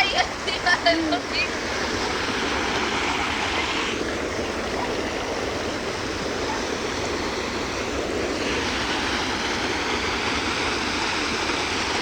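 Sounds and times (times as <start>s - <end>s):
runoff water rushing: 0.0s - 12.0s.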